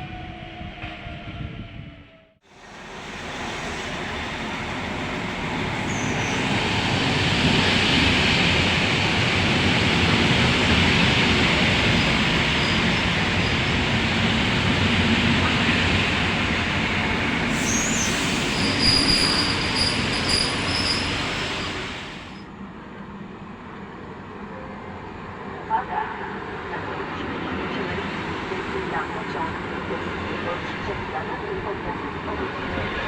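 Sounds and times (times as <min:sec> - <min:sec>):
train rolling on rails: 0:02.5 - 0:33.0
high wheel squeal: 0:05.8 - 0:06.6, 0:17.5 - 0:21.9.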